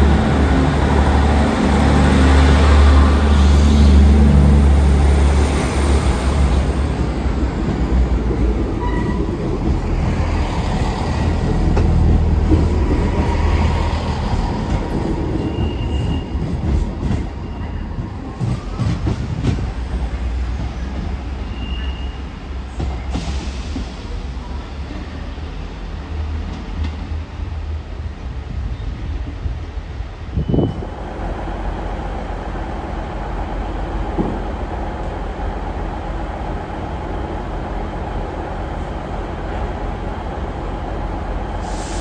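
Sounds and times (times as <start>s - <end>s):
train rumbling: 0.0s - 42.0s
wheel or brake squeals: 14.9s - 16.6s, 21.4s - 22.3s.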